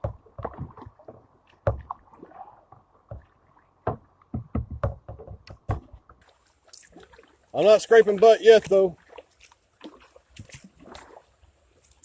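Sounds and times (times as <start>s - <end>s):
paddle knocking kayak hull: 0.0s - 6.3s
water splashing: 0.0s - 12.0s.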